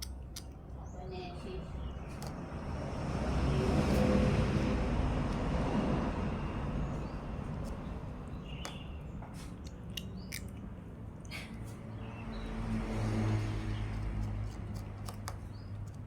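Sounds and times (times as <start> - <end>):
vehicle passing by: 1.3 - 9.6, 11.6 - 15.8.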